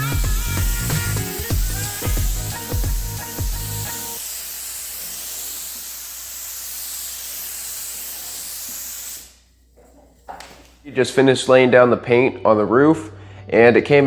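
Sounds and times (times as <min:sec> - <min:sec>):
spray gun hissing: 0:00.0 - 0:09.4.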